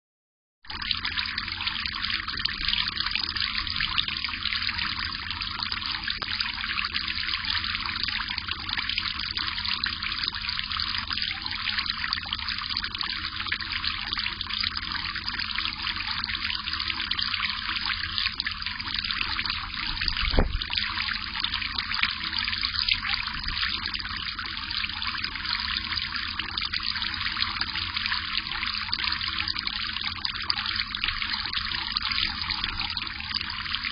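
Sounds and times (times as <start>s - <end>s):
water trickling: 0.7s - 33.9s
low thump: 20.0s - 20.8s.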